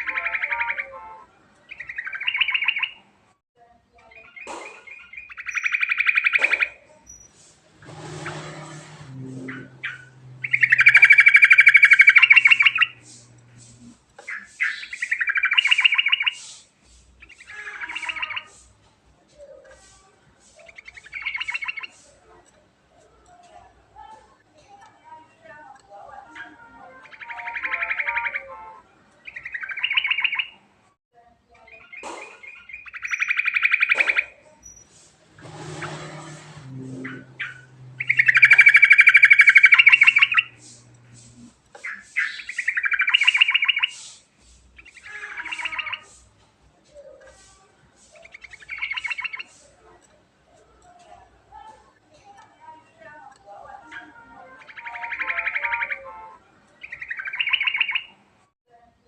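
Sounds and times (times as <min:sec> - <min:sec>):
bird singing trilled chattering: 0:00.0 - 0:01.0, 0:01.6 - 0:03.0, 0:04.0 - 0:07.5, 0:08.3 - 0:16.6, 0:17.2 - 0:18.7, 0:20.4 - 0:22.1, 0:24.9 - 0:28.6, 0:29.2 - 0:30.6, 0:31.6 - 0:35.1, 0:35.7 - 0:46.2, 0:48.0 - 0:49.7, 0:52.7 - 0:56.2, 0:56.8 - 0:58.2
low hum: 0:07.7 - 0:14.0, 0:35.3 - 0:41.5.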